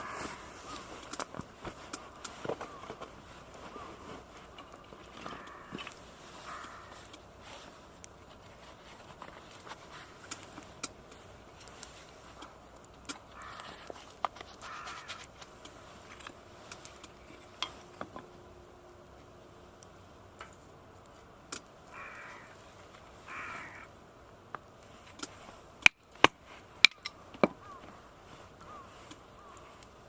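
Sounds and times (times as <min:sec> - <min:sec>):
crow cawing: 0:00.0 - 0:01.0, 0:02.1 - 0:03.0, 0:03.6 - 0:04.0, 0:04.6 - 0:07.1, 0:13.3 - 0:13.9, 0:14.6 - 0:15.3, 0:21.9 - 0:22.6, 0:23.2 - 0:24.0, 0:27.0 - 0:29.8.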